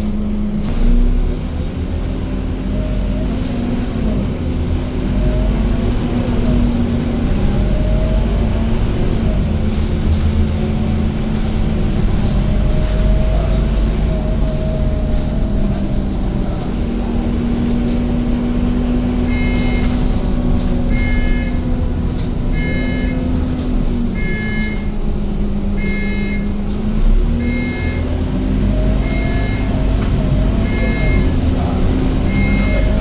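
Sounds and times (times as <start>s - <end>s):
bus diesel engine rumbling: 0.0s - 33.0s
electronic warning beep: 19.3s - 20.0s, 20.9s - 21.6s, 22.6s - 23.2s, 24.2s - 25.0s, 25.8s - 26.6s, 27.4s - 28.1s, 29.0s - 29.8s, 30.6s - 31.4s, 32.3s - 33.0s.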